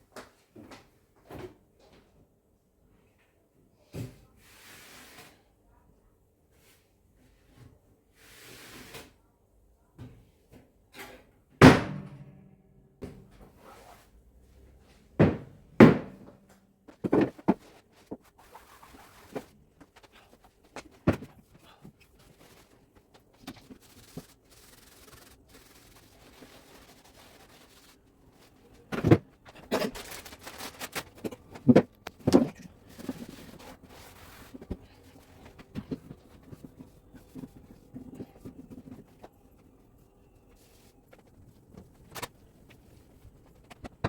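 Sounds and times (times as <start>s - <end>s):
objects knocking and clunking: 15.2s - 18.3s, 19.4s - 22.0s, 28.8s - 39.4s, 41.1s - 44.0s
faint rubbing and wiping: 17.4s - 44.0s.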